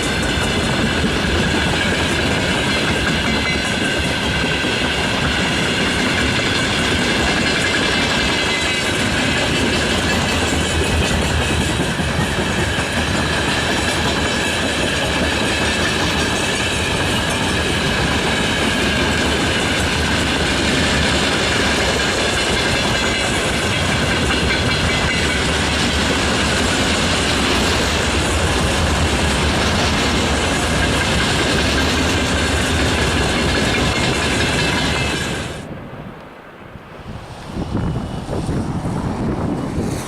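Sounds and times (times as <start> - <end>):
train wheels clattering over rails: 0.0 - 35.6.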